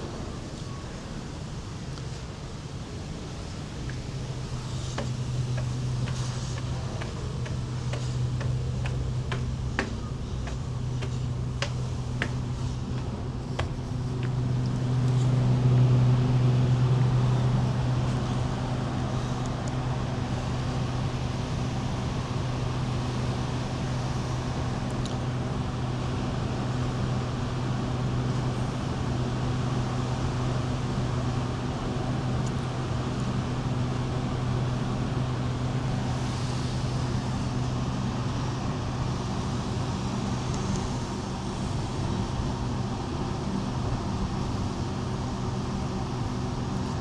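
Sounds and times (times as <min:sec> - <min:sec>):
low machinery hum: 0:00.0 - 0:47.0.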